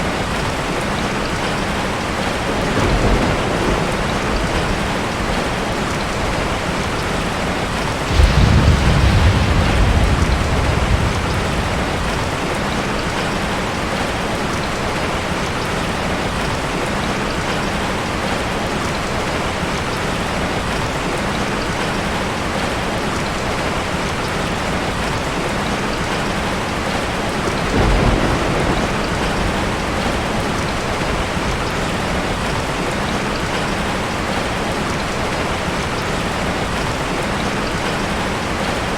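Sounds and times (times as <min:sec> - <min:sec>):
thunder rumbling: 0:01.6 - 0:15.6, 0:26.8 - 0:34.4
rain hissing: 0:02.0 - 0:15.6.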